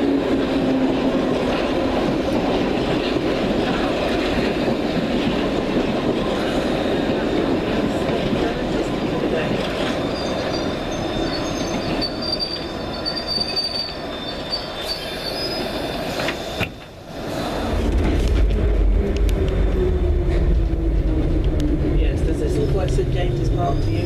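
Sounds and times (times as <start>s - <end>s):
heavy low train rumble: 0.0s - 24.0s
train wheel squeal: 9.2s - 16.9s, 22.5s - 24.0s.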